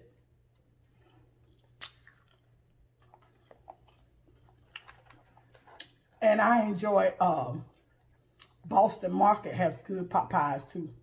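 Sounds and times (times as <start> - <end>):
person chewing food: 0.0 - 6.2, 7.4 - 8.7
soft wet mouth clicks: 1.6 - 2.4.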